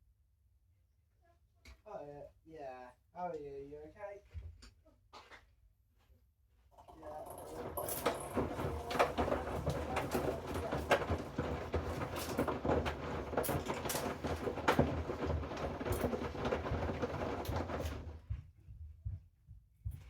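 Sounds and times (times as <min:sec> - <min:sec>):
washing machine drum tumbling: 0:06.8 - 0:18.4
laundry sloshing and knocking: 0:07.0 - 0:18.4.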